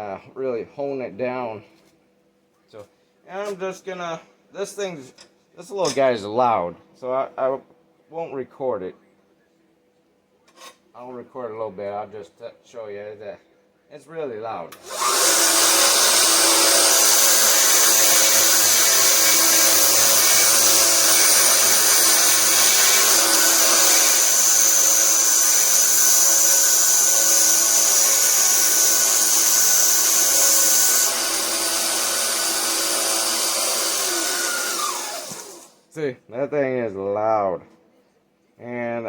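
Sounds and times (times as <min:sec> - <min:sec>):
belt sander running: 0:14.8 - 0:35.7
sander grinding metal hiss: 0:14.8 - 0:35.8.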